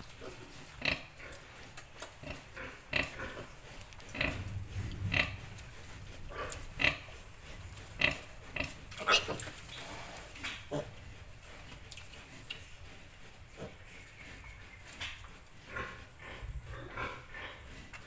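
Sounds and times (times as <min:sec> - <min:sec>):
piglets grunting: 0:08.0 - 0:11.1.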